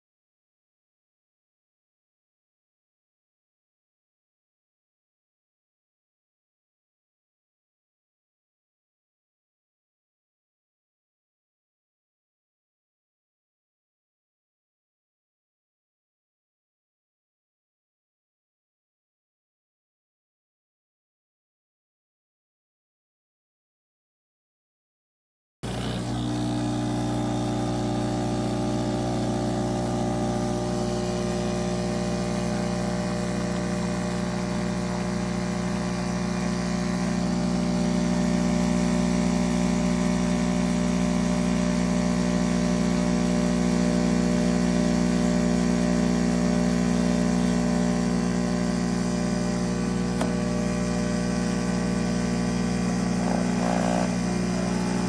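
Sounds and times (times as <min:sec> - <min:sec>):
espresso machine pump buzzing: 0:25.6 - 0:55.0.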